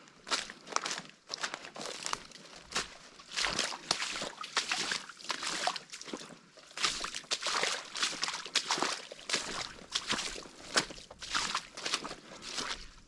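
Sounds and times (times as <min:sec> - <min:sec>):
crunching footsteps on trail: 0:00.0 - 0:13.0.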